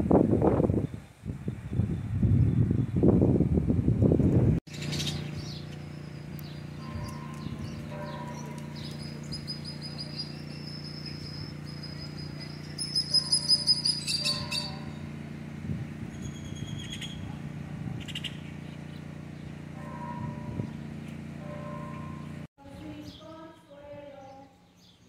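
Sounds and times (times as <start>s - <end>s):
steady low hum: 3.0s - 23.0s
small birds chirping: 4.7s - 15.0s, 16.0s - 17.4s, 18.0s - 21.3s.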